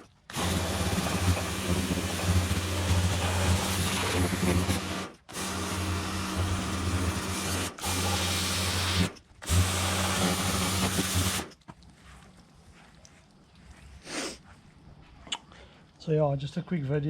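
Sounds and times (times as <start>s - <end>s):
power tool motor hum: 0.0s - 11.5s.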